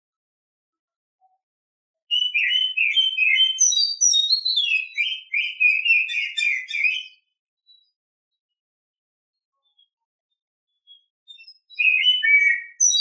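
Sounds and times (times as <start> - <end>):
bird singing whistled notes: 2.1 - 8.0, 10.7 - 13.0.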